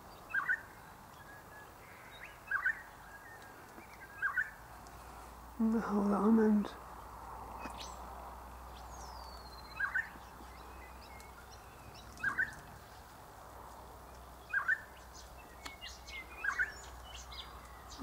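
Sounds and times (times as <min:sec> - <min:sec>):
faint high bird chirps: 0:00.2 - 0:04.6, 0:08.7 - 0:12.8, 0:14.4 - 0:18.0.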